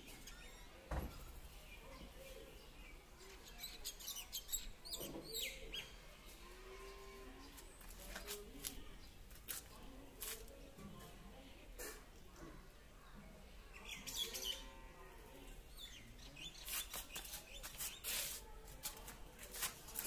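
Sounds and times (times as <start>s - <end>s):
small birds chirping: 0.1s - 10.8s, 13.5s - 18.5s.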